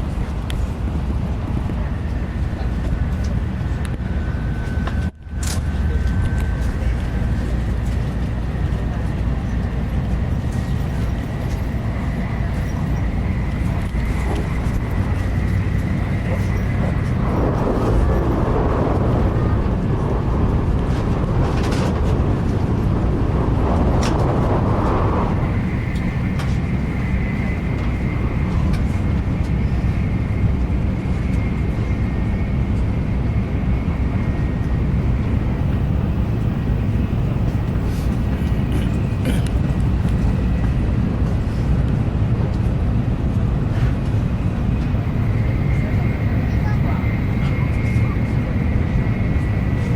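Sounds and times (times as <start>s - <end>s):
train cabin rumble: 0.0s - 49.9s.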